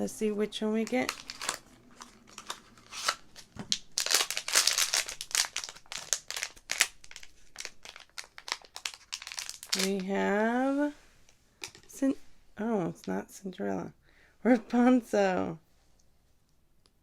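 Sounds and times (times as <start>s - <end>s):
packaging crinkling and rustling: 0.8s - 10.3s.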